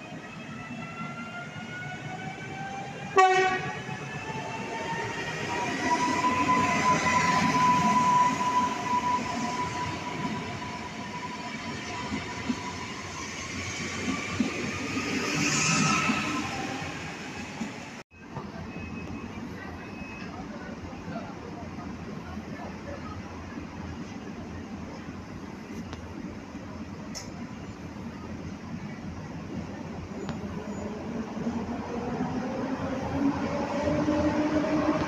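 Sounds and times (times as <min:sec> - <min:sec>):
train horn blast: 0:03.2 - 0:03.8.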